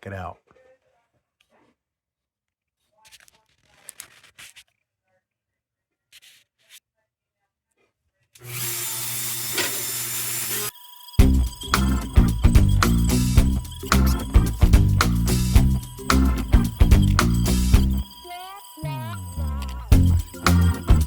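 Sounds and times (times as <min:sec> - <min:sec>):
rubbing and handling sounds: 0:02.8 - 0:04.9, 0:06.0 - 0:06.9
power tool motor running: 0:08.4 - 0:21.0
music: 0:11.2 - 0:21.0.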